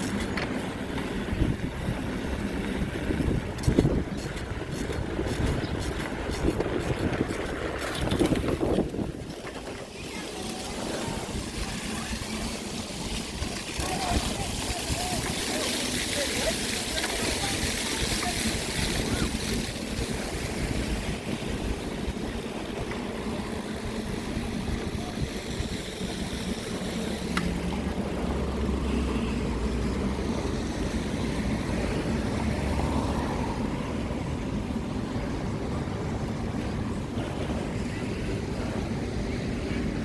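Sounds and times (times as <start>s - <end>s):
wind buffeting microphone: 0.0s - 28.8s
wind rush while cycling: 0.0s - 40.0s.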